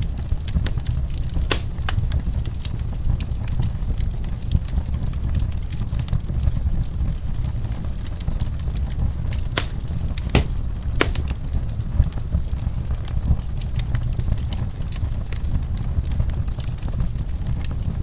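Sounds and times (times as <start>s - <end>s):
wood fire crackling: 0.0s - 18.0s
sharp pops: 1.5s - 1.9s, 9.6s - 11.5s.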